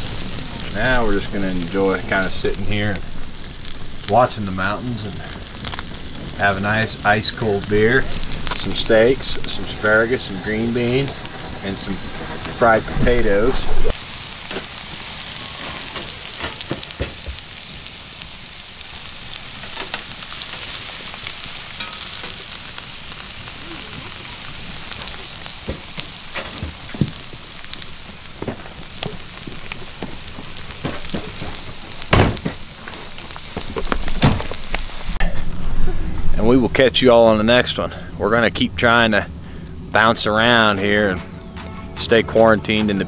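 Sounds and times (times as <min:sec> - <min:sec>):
food sizzling in skillets: 0:00.0 - 0:37.8
loud knock: 0:32.1 - 0:32.6.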